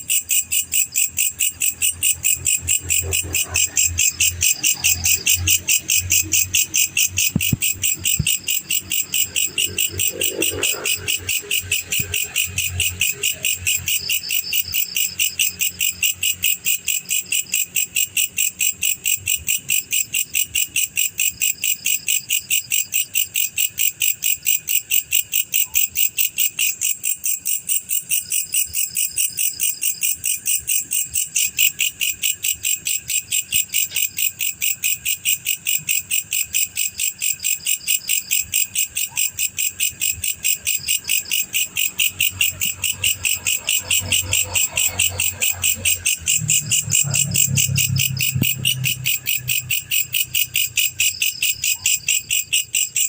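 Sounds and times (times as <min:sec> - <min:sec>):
cricket chirping: 0:00.0 - 0:53.0.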